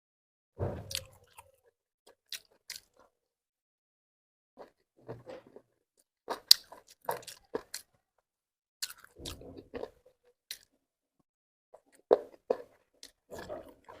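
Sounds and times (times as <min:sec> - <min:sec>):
person chewing crunchy food: 0:00.8 - 0:03.2, 0:04.6 - 0:08.2, 0:08.8 - 0:10.8, 0:11.8 - 0:14.0.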